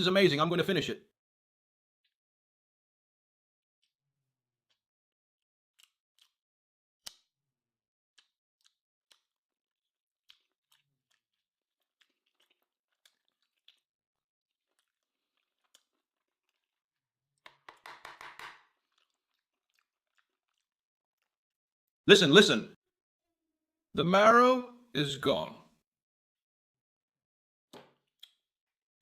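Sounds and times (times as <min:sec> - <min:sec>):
person chewing meat: 0:05.7 - 0:17.8, 0:18.6 - 0:21.6
wet mouth clicks and smacks: 0:05.8 - 0:06.4, 0:10.2 - 0:13.9.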